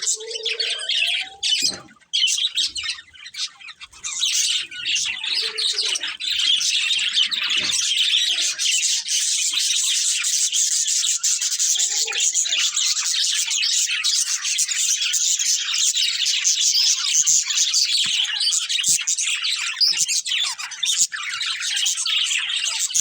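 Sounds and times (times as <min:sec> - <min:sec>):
budgerigars chirping: 0:00.0 - 0:23.0.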